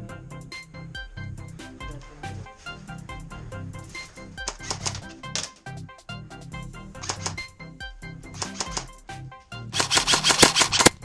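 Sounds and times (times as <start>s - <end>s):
background music sustained notes: 0.0s - 11.0s
sharp percussive clicks: 4.5s - 5.6s, 7.0s - 7.4s, 8.4s - 9.0s, 9.8s - 11.0s.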